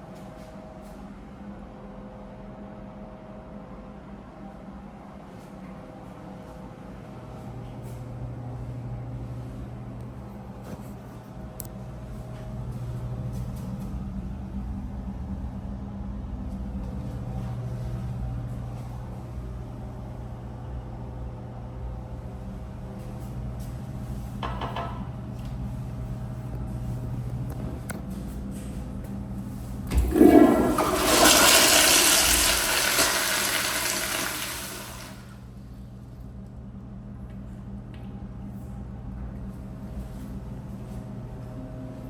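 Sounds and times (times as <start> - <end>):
toilet flush clunk: 29.9 - 35.3
toilet flushing water rush: 29.9 - 35.4.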